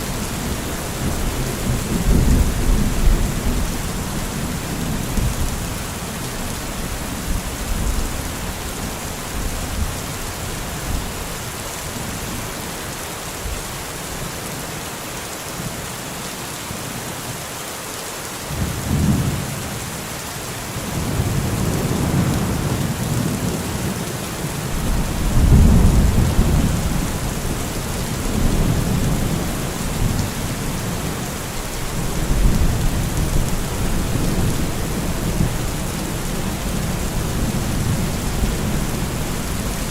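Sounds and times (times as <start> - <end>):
steady rain: 0.0 - 39.9
thunder rumbling: 20.9 - 31.2.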